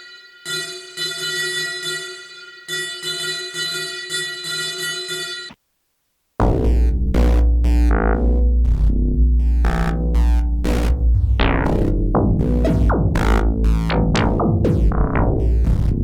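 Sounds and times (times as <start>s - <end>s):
deep synth bass: 6.4s - 16.0s
synthesizer plucked notes: 6.4s - 16.0s.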